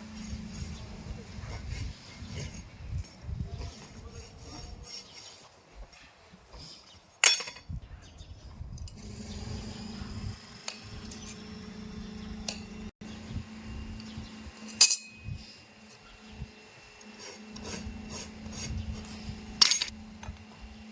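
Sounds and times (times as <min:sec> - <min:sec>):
metal tools clinking: 0:07.2 - 0:07.7, 0:14.6 - 0:15.3, 0:19.6 - 0:19.9.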